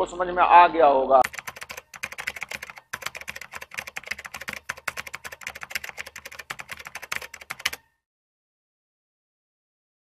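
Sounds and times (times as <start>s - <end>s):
keyboard typing: 1.2s - 7.9s.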